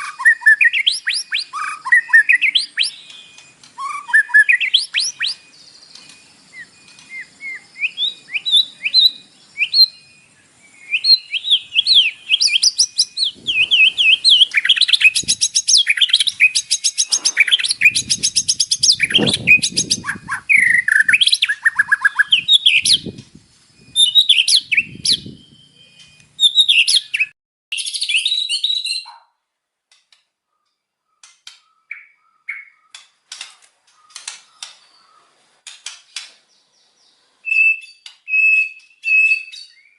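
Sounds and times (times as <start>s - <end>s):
bird singing: 0.0s - 29.2s, 30.4s - 35.4s, 36.0s - 39.9s.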